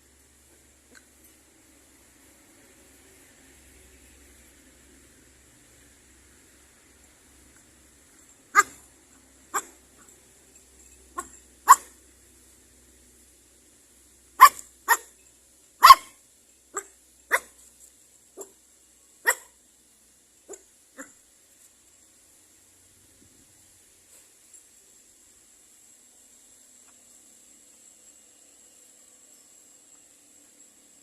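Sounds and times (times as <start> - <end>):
dog barking: 8.5 - 8.9, 9.5 - 9.8, 11.2 - 12.0, 14.4 - 15.1, 15.8 - 16.2, 16.8 - 17.6, 19.2 - 19.6.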